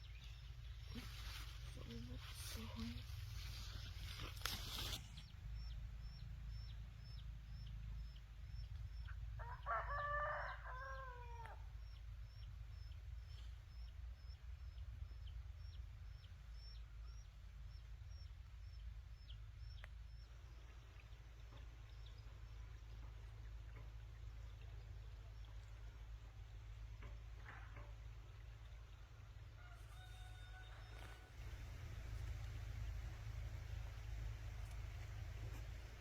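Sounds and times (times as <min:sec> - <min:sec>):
steady low hum: 0:00.0 - 0:09.7, 0:30.7 - 0:36.0
rooster crowing: 0:09.4 - 0:11.6, 0:29.6 - 0:31.4
faint high ticks: 0:19.6 - 0:20.3, 0:34.5 - 0:35.8.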